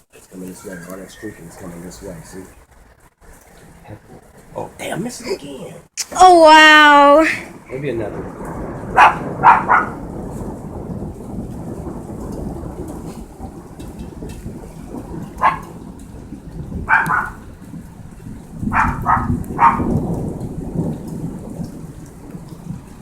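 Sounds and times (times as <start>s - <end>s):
heavy rain: 0.0s - 23.0s
thunder rumbling: 7.2s - 23.0s
dog barking: 8.9s - 10.0s, 15.4s - 15.8s, 16.9s - 17.4s, 18.7s - 20.0s.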